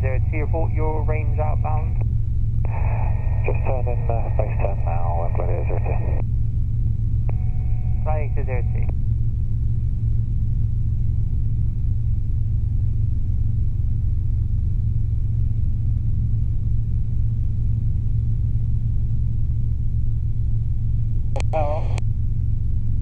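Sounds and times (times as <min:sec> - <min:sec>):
helicopter engine and rotor drone: 0:00.0 - 0:23.0.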